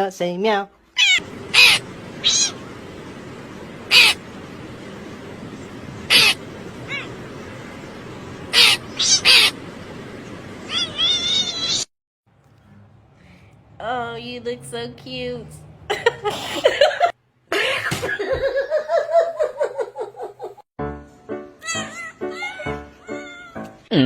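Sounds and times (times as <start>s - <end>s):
cat meowing: 1.0s - 2.6s, 3.9s - 4.2s, 6.1s - 7.2s, 8.5s - 9.6s, 10.7s - 11.9s, 21.6s - 23.7s
steady background hiss: 1.2s - 11.9s.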